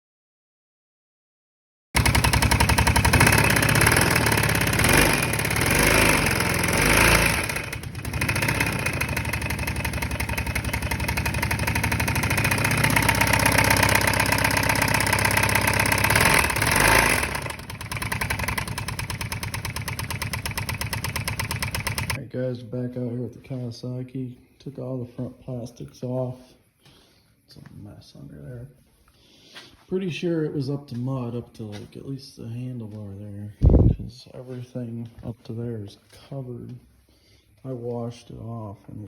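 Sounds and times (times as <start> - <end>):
atv engine revving: 2.0 - 22.2.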